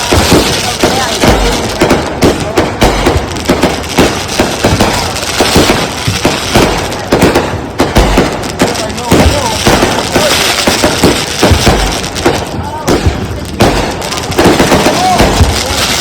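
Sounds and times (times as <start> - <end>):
firework shells booming: 0.0 - 16.0
fireworks popping and crackling: 0.0 - 16.0.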